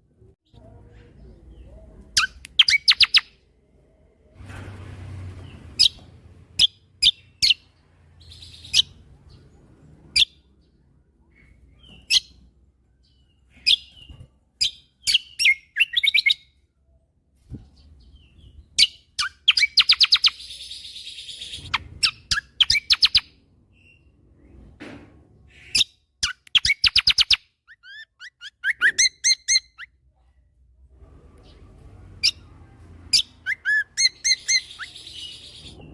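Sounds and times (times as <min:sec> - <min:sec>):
songbird chirps: 0:00.0 - 0:35.9.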